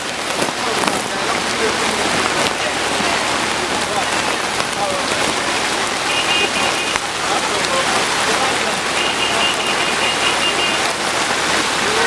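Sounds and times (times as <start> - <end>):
heavy rain pouring: 0.0 - 12.0
rapid high beeps: 6.1 - 7.0, 8.9 - 10.8.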